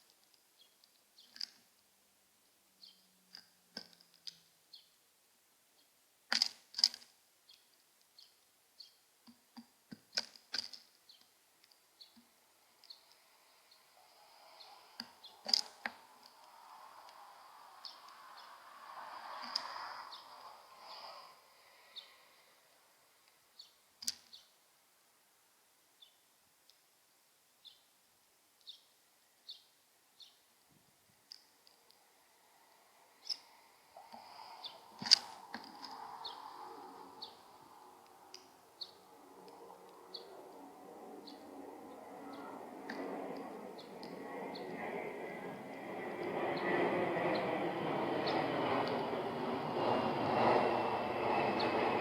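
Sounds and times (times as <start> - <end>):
sparrow chirping: 17.7 - 21.2, 28.6 - 30.5, 33.2 - 33.6, 34.4 - 37.6, 38.3 - 39.1, 40.0 - 40.5, 41.2 - 42.6.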